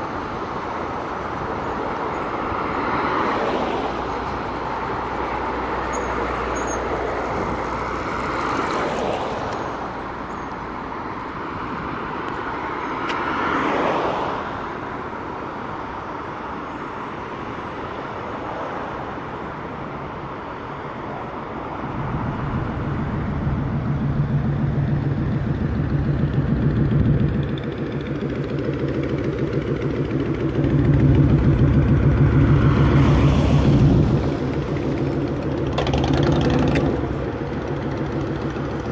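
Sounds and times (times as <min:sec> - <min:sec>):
vehicles passing with tyre hiss: 0:00.0 - 0:38.9
heavy engine rumbling: 0:04.0 - 0:08.8, 0:21.1 - 0:38.9.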